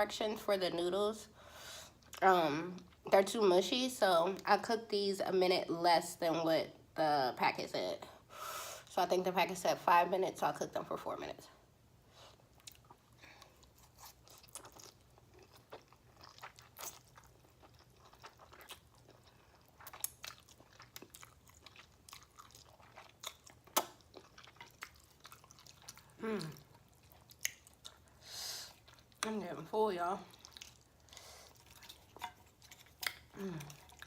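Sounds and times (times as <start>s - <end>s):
person chewing noodles: 12.5s - 29.2s, 30.3s - 34.0s.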